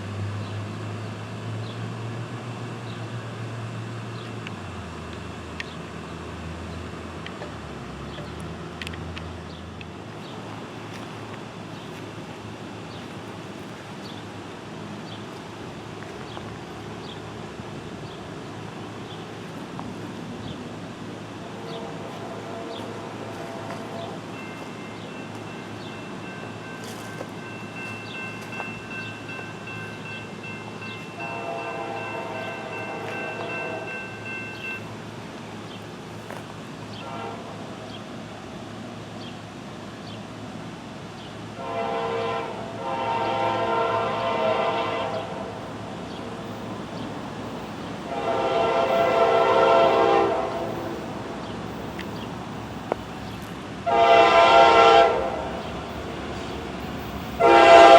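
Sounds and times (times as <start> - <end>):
train rumbling: 0.0 - 57.9
locomotive air horn blasts: 21.4 - 24.2, 31.1 - 34.2, 37.0 - 37.6, 41.6 - 45.6, 48.1 - 51.1, 53.8 - 55.7, 57.4 - 57.9.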